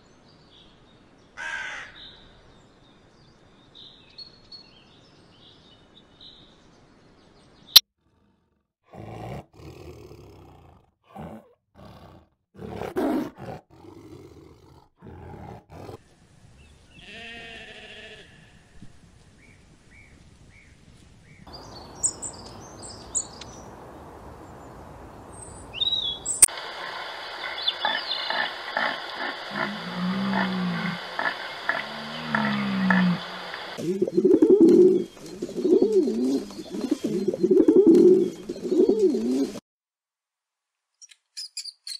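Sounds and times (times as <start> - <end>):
tiger growling and snarling: 8.0 - 16.0, 28.8 - 38.3
sheep bleating: 17.0 - 18.6
birdsong: 19.4 - 39.6
stag roaring: 28.3 - 34.1.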